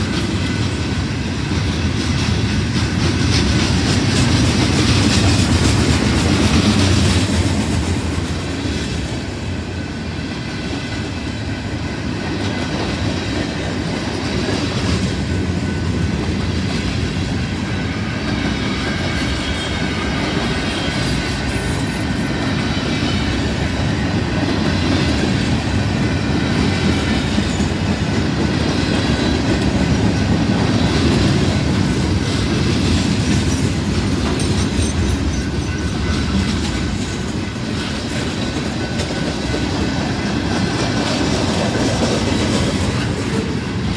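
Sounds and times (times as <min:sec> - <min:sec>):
train wheels on rails: 0:00.0 - 0:43.9.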